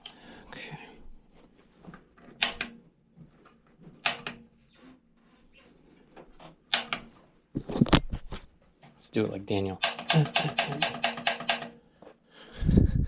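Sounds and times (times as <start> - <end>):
hard parts knocking and clacking: 2.2 - 2.8, 4.0 - 4.5, 6.7 - 7.2, 9.8 - 11.8.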